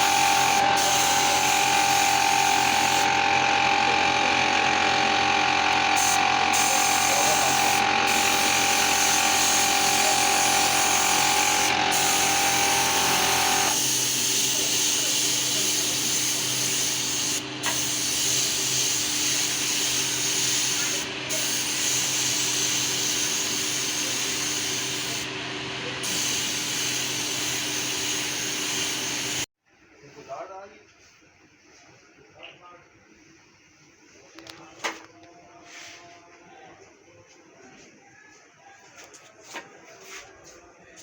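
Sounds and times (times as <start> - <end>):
electric power tool motor running: 0.0 - 29.5.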